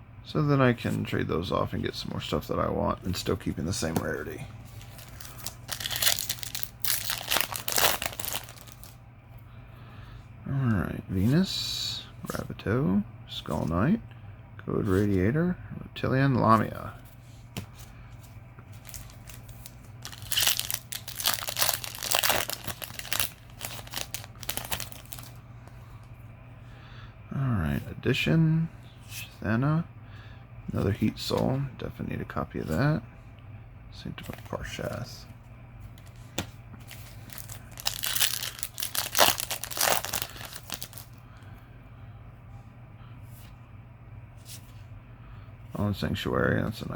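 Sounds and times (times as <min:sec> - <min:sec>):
foil wrapper crinkling: 0:04.7 - 0:09.0, 0:18.8 - 0:25.4, 0:36.8 - 0:41.2.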